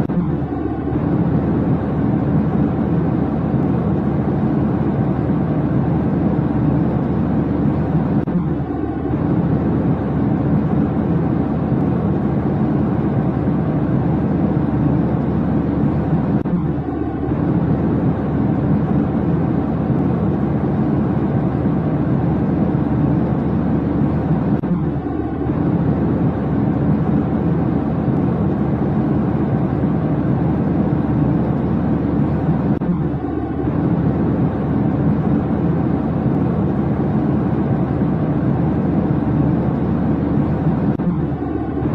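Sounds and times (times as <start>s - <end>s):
airliner cabin rumble: 0.0s - 41.9s.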